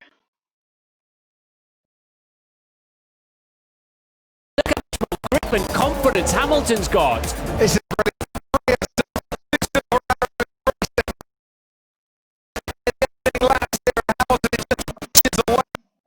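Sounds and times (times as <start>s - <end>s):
choppy fragmented video audio: 4.6s - 11.2s, 12.6s - 15.8s.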